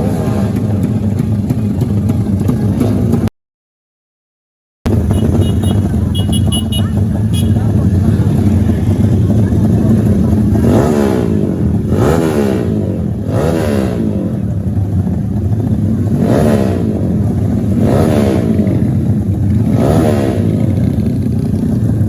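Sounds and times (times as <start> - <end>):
motorcycle engines revving: 0.0 - 3.3, 4.9 - 22.0
steady engine drone: 4.9 - 22.0.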